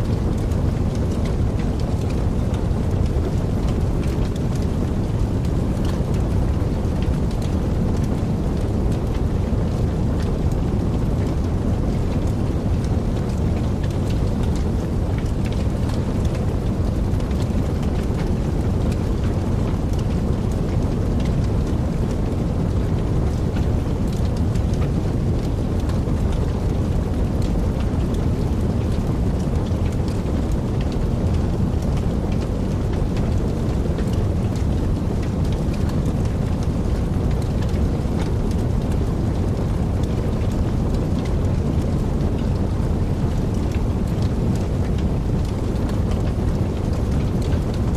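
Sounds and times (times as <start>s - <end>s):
wood fire crackling in fireplace: 0.0s - 47.9s.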